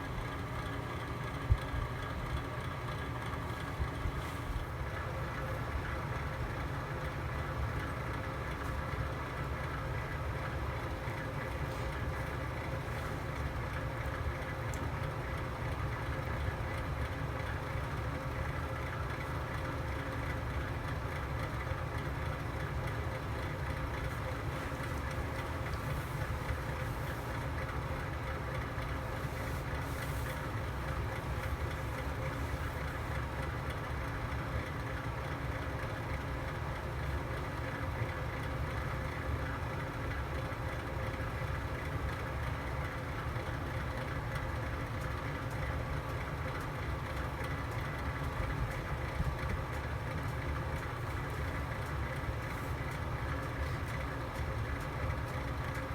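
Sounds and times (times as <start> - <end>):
faint hum: 0.0 - 43.3
fire burning in fireplace: 18.4 - 33.8.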